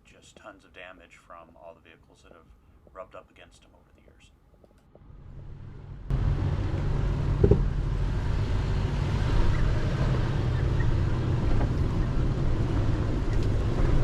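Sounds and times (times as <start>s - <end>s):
engine running low drone: 5.0s - 14.0s
short knock: 7.4s - 7.7s.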